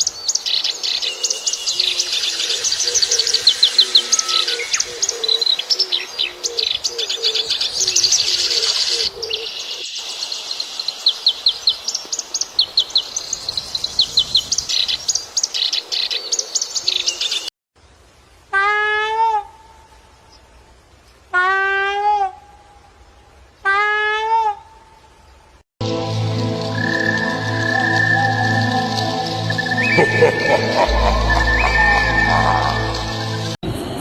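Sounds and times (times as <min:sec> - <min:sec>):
large bird drawn-out calls: 0:01.2 - 0:09.4, 0:26.8 - 0:33.6
low bird call: 0:26.6 - 0:33.6.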